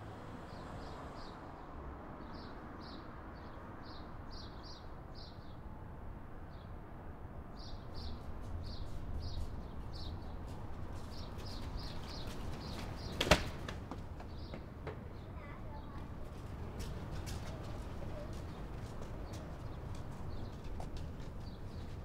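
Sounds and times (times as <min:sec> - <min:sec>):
low street rumble: 0:00.0 - 0:22.0
footsteps clicking: 0:16.3 - 0:22.0.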